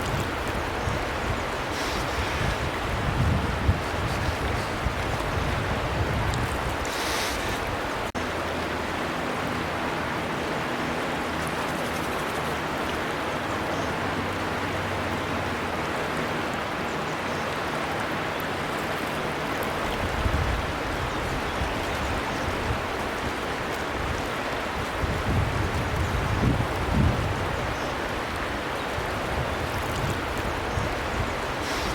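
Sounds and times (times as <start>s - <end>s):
river water rushing: 0.0s - 31.9s.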